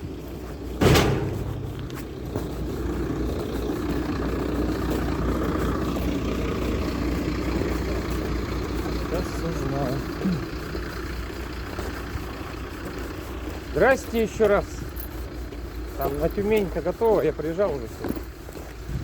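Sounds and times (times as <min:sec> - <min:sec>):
truck engine idling: 0:00.0 - 0:19.0
sharp knock: 0:00.8 - 0:02.4.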